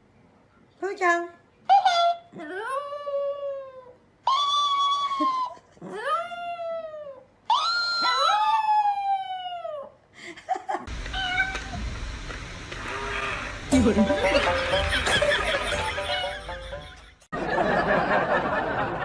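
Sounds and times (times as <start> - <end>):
cat yowling: 11.1 - 11.8
second cat voice: 11.1 - 11.8.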